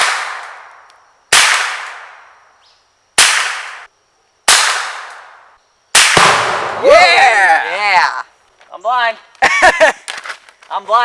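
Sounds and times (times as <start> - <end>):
rifle shots with echo: 6.0 - 6.8.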